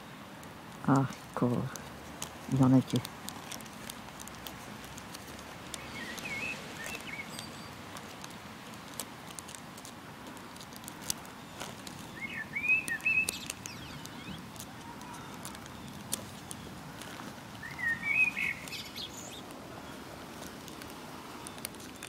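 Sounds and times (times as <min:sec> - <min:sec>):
faint clicks: 0:00.4 - 0:19.6, 0:20.4 - 0:22.0
small bird gliding chirps: 0:05.7 - 0:07.8, 0:11.4 - 0:16.8, 0:17.5 - 0:20.1.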